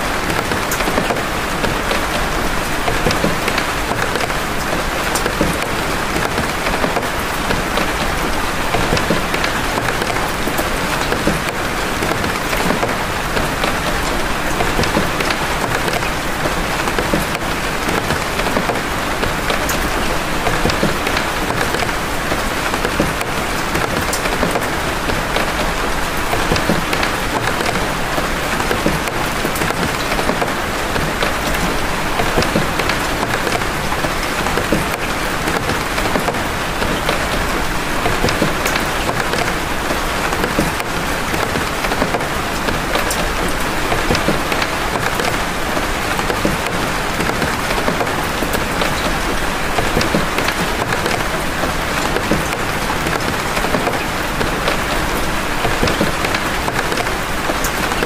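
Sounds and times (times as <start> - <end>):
heavy rain drops falling: 0.0 - 58.0.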